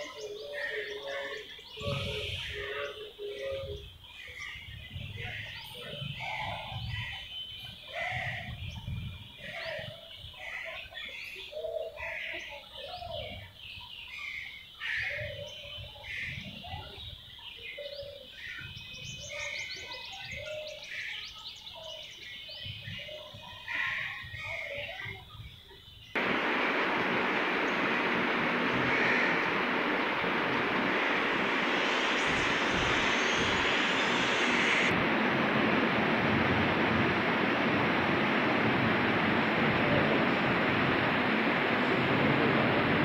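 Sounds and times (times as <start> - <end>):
birds chirping and calling: 0.0 - 34.9
high-pitched whine: 26.2 - 43.0
low rumble: 26.2 - 43.0.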